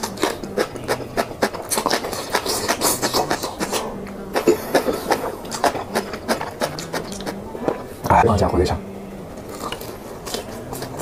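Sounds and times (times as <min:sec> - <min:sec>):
chewing with wet crunches: 0:00.0 - 0:07.9.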